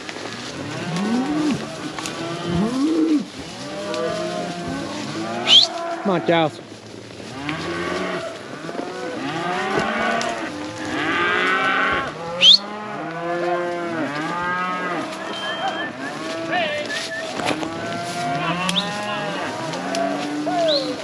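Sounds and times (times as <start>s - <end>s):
cows mooing and bawling: 0.2s - 6.5s, 7.2s - 21.0s.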